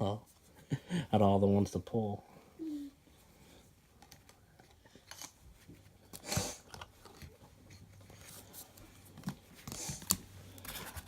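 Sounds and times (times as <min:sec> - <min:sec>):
card rustle: 0:05.0 - 0:11.0.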